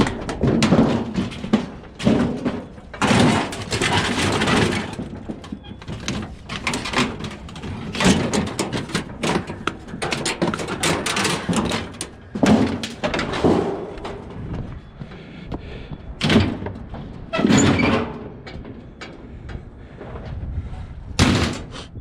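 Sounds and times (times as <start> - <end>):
scrap clattering: 0.0 - 14.5.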